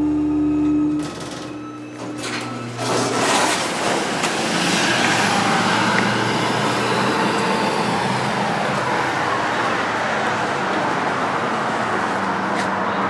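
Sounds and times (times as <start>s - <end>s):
road traffic noise: 0.0s - 13.0s
elevator doors opening: 0.6s - 10.1s.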